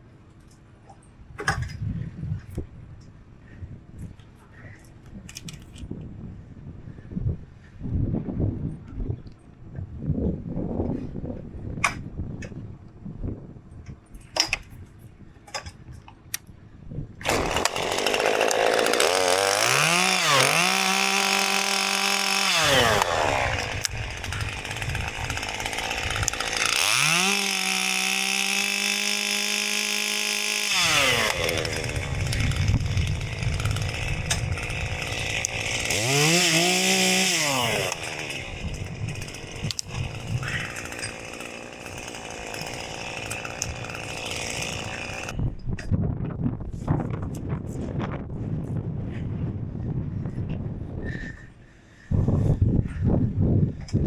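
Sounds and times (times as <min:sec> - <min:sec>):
chainsaw revving: 0:17.2 - 0:45.4.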